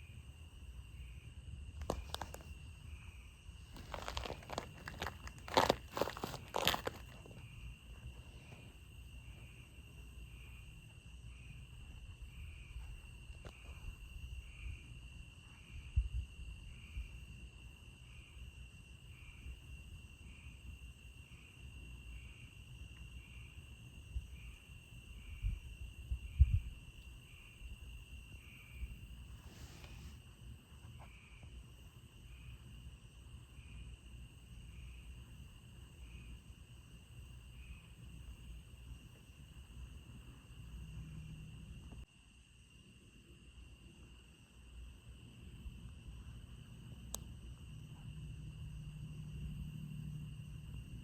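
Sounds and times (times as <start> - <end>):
night insects trilling: 0.0 - 51.0.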